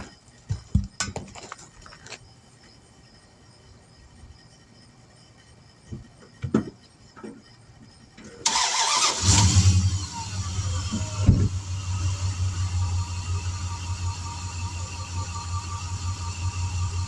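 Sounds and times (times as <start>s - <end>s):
engine cranking and idling: 8.4s - 17.0s.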